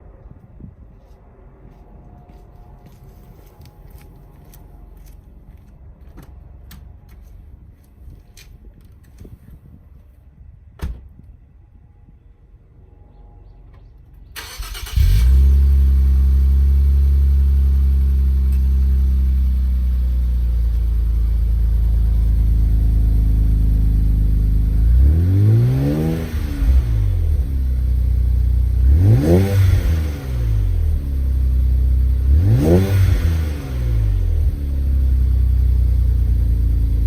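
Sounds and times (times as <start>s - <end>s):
engine revving: 14.4s - 19.0s, 22.6s - 27.8s, 28.6s - 37.0s.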